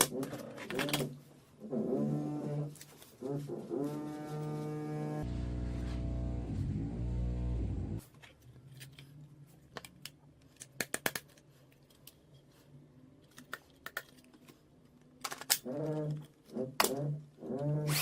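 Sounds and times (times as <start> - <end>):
low horn-like tone: 3.3 - 8.0
sharp clicks and handling noises: 8.0 - 17.1.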